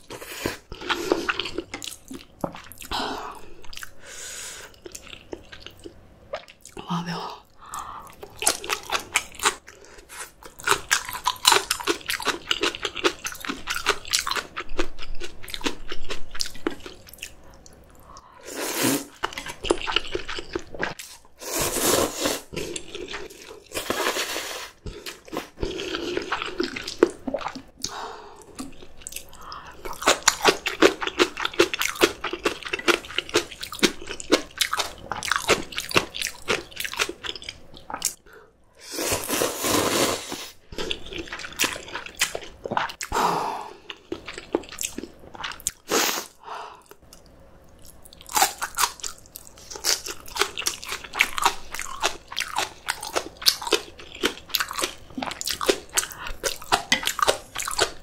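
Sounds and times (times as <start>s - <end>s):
crunchy chewing: 46.8s - 58.0s.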